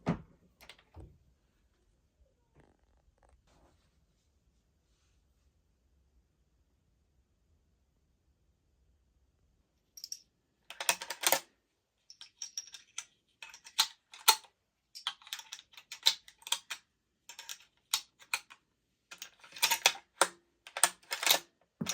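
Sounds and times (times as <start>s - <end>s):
metal parts clicking and clinking: 10.0s - 11.5s, 12.1s - 21.9s.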